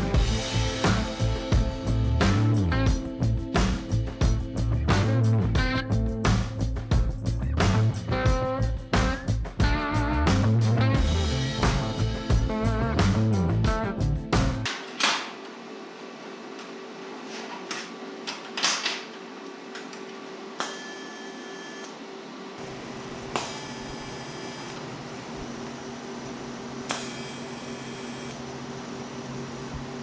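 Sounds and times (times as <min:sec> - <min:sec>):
steady machine hum: 0:00.0 - 0:10.2, 0:10.8 - 0:18.6, 0:19.2 - 0:30.0
low rumble: 0:00.0 - 0:14.7.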